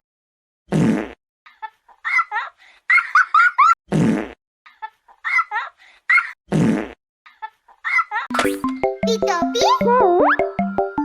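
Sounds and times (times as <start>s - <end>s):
cartoon fart blasts: 0.7s - 1.2s, 3.9s - 4.4s, 6.5s - 7.0s.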